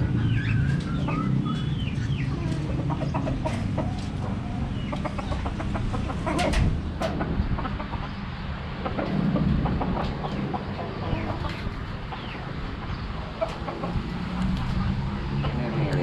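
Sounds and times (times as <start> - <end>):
budgerigars chirping: 0.2 - 6.4.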